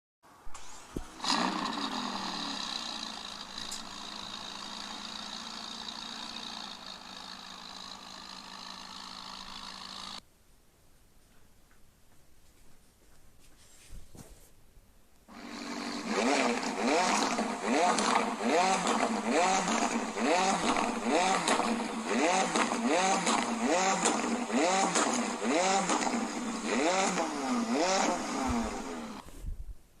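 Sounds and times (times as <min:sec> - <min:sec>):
car engine starting and idling: 0:00.4 - 0:10.2, 0:15.3 - 0:29.2.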